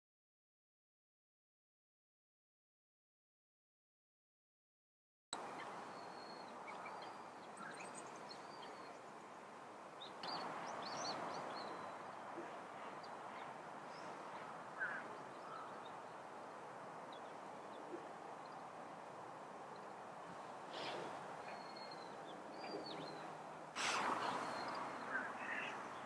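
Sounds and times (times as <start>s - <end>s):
outdoor background hiss: 5.4s - 26.0s
small songbirds chirping: 5.4s - 26.0s.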